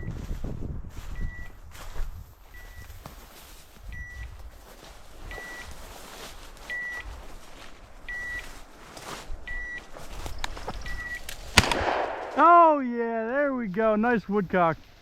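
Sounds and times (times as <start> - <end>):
footsteps: 0.0 - 12.4
brush rustling: 0.4 - 11.7
short high beeps: 5.3 - 5.7, 10.8 - 11.2.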